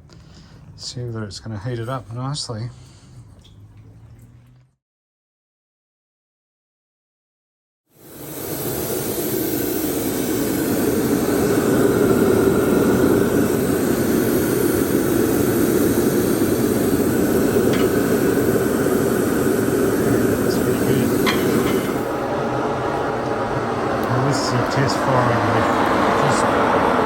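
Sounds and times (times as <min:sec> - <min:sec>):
hairdryer blowing air: 0:08.0 - 0:27.0.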